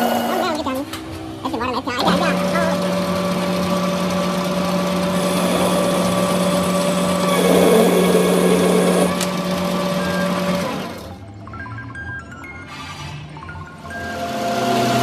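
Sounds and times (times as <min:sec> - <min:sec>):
workshop machine humming: 0:00.0 - 0:15.0
rough tool noise: 0:05.1 - 0:09.3.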